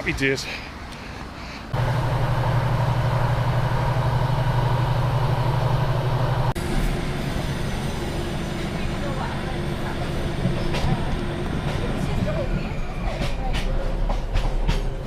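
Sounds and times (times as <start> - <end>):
vehicle engine idling: 1.7 - 6.6.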